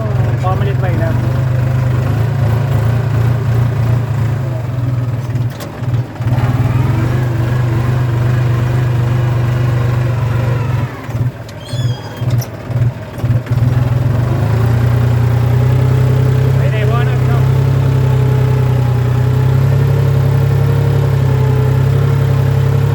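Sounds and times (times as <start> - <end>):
tractor engine under load: 0.0 - 22.9
short high chirps: 11.6 - 12.4.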